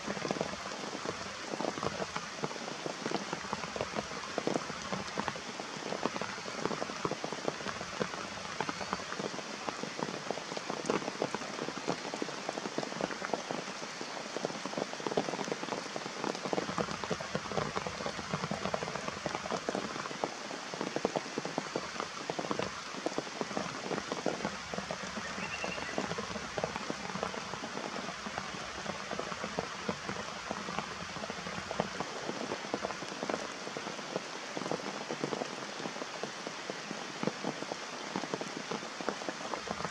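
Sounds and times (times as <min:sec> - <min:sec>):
rain patter: 0:00.0 - 0:39.9.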